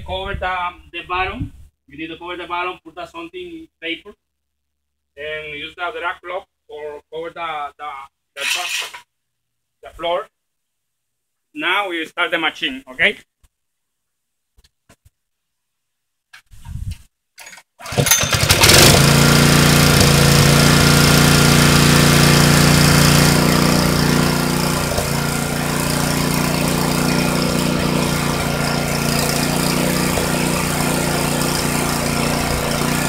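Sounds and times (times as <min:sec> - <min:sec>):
paint sprayer humming: 0:17.8 - 0:33.0.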